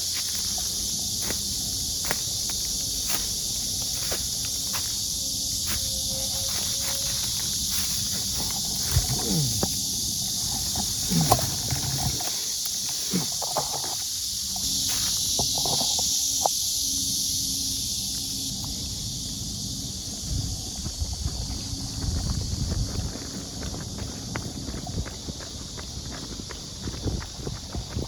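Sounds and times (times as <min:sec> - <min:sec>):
cracks in dry undergrowth: 0:00.0 - 0:16.6.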